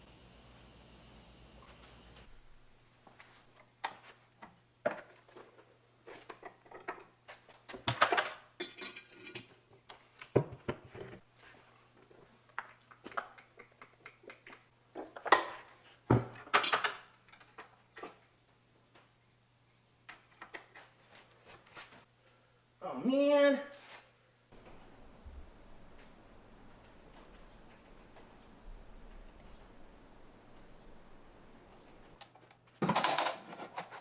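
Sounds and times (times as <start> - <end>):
metal tools clanking: 8.0 - 9.5
faint low hum: 24.5 - 32.2.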